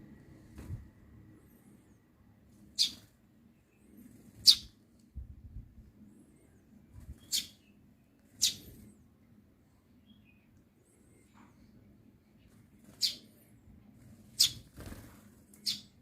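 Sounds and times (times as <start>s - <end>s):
sparrow chirping: 2.7s - 3.1s, 3.8s - 4.8s, 7.1s - 8.8s, 12.8s - 13.3s, 14.2s - 14.7s, 15.5s - 16.0s.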